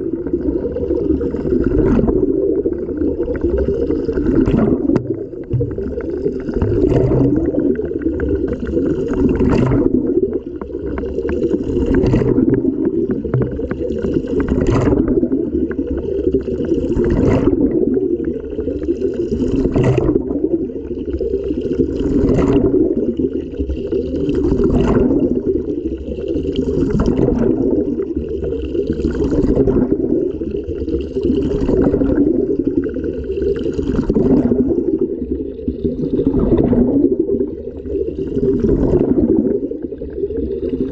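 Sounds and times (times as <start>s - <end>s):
washing machine drum sloshing: 11.9s - 13.6s.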